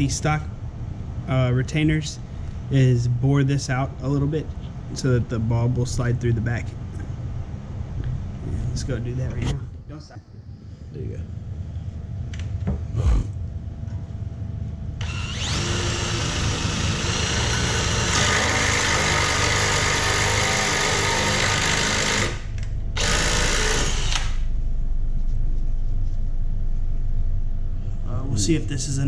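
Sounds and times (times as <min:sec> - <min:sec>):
power drill boring plastic: 0:15.0 - 0:24.4.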